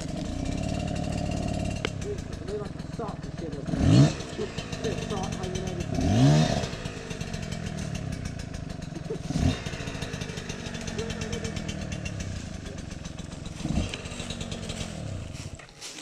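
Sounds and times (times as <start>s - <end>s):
dirt bike engine idling and revving: 0.0s - 16.0s.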